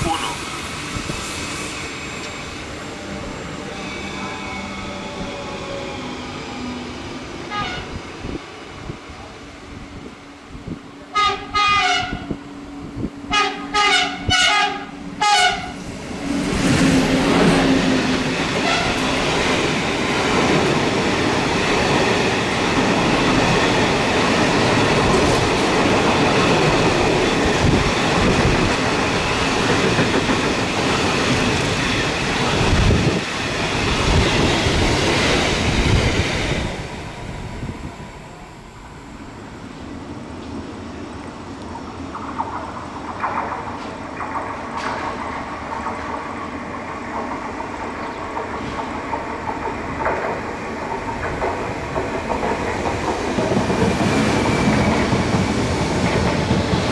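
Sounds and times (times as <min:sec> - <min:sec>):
train wheels rumbling on rails: 0:00.0 - 0:56.9
locomotive horn blasts: 0:07.5 - 0:08.0, 0:11.1 - 0:12.4, 0:13.3 - 0:15.8, 0:18.6 - 0:19.0.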